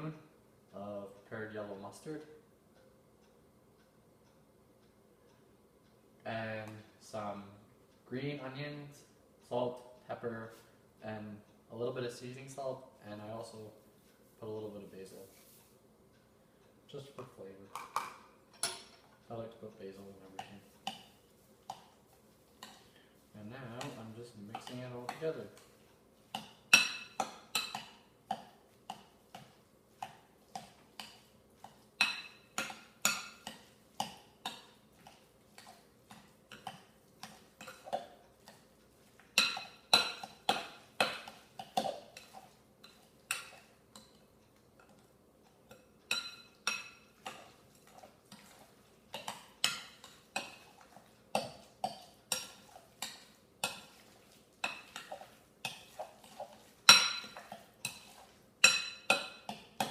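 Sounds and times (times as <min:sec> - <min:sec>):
utensil clinking against bowl: 0:23.7 - 0:25.7, 0:26.3 - 0:45.1, 0:45.7 - 0:59.9.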